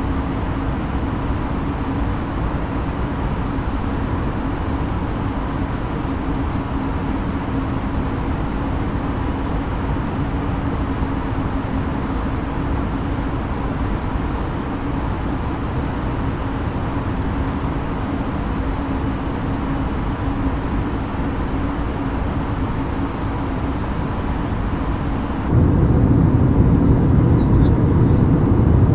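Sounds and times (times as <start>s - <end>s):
steady hum: 19.0s - 28.9s
airplane cabin engine rumble: 21.8s - 28.9s.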